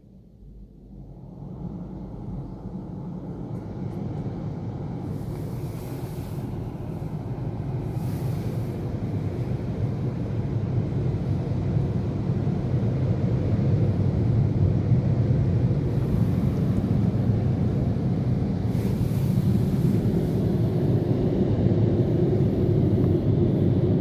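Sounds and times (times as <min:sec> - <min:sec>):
car wash machine rumbling: 0:03.8 - 0:12.7, 0:15.0 - 0:24.0.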